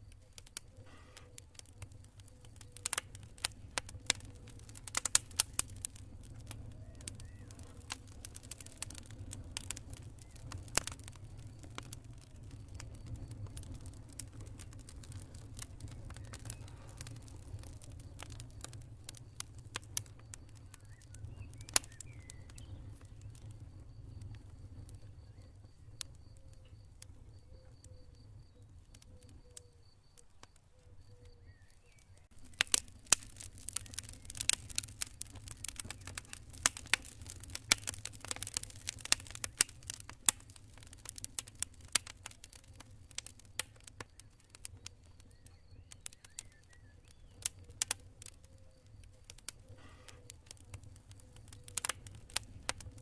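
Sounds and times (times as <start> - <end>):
campfire crackling and popping: 0.0 - 53.0
cricket chirping: 15.9 - 53.0.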